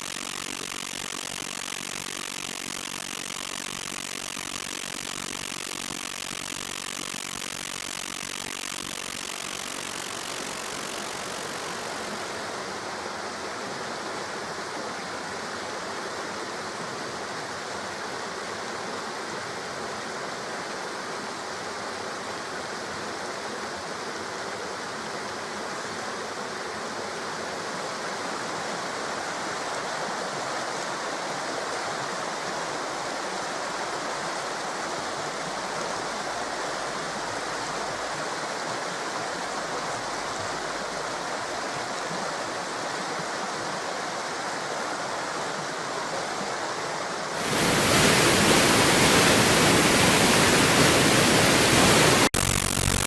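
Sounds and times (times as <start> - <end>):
flowing water rushing: 37.8 - 52.3.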